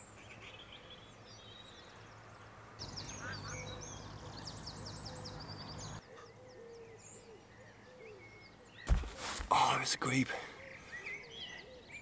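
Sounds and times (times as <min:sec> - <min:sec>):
small birds singing: 0:00.0 - 0:12.0.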